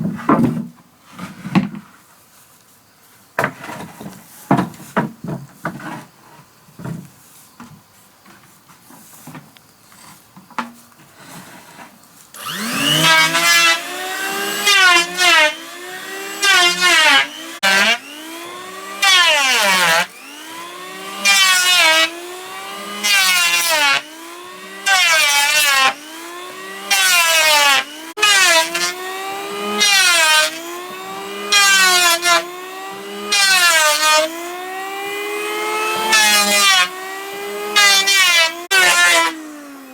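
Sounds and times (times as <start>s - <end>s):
power planer cutting wood: 12.4s - 39.9s.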